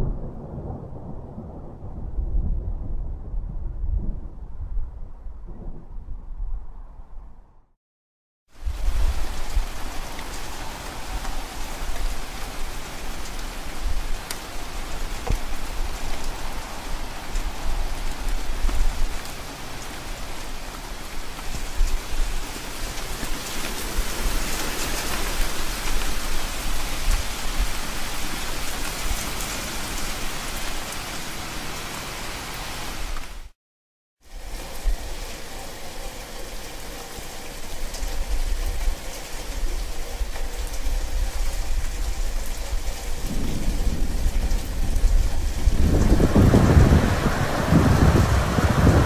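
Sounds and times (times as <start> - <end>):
low rumble: 0.0 - 7.7, 43.2 - 49.0
heavy rain: 8.5 - 33.6, 34.2 - 49.0.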